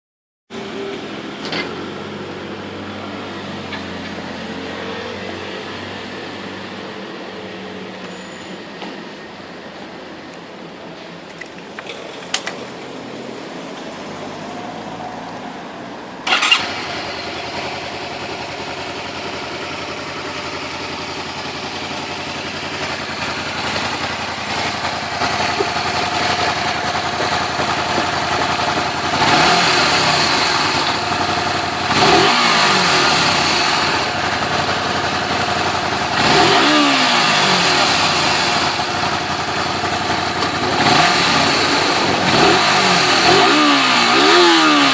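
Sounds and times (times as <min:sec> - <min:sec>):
motorcycle engine starting and idling: 0:11.2 - 0:15.0, 0:16.2 - 0:44.9
engine revving: 0:16.2 - 0:44.9
starter clicks and hum: 0:22.6 - 0:44.9.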